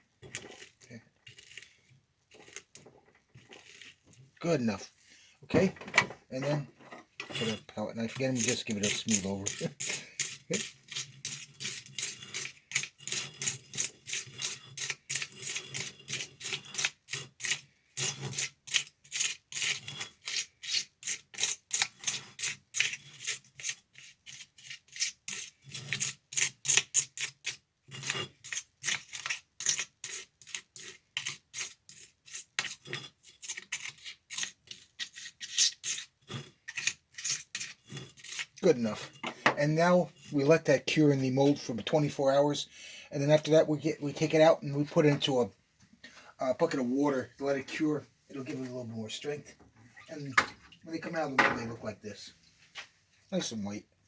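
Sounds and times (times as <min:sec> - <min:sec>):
palette knife scraping wet cement: 0:07.2 - 0:45.5, 0:46.5 - 0:49.4.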